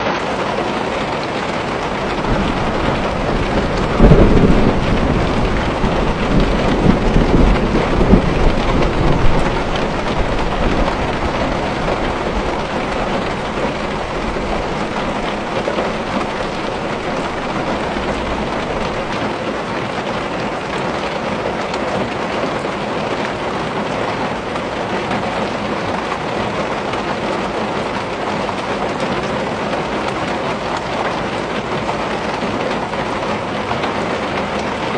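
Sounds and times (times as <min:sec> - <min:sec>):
rain pattering on a window: 0:00.0 - 0:34.9
thunder rumbling: 0:00.2 - 0:20.8.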